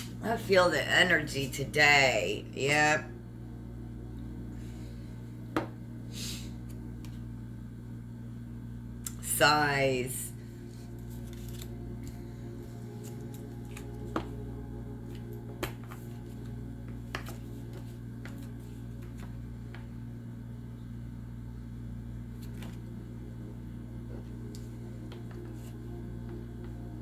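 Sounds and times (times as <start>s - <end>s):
steady low drone: 0.0s - 27.0s
cards clicking and tapping: 11.2s - 12.2s, 13.0s - 14.4s, 15.1s - 19.9s.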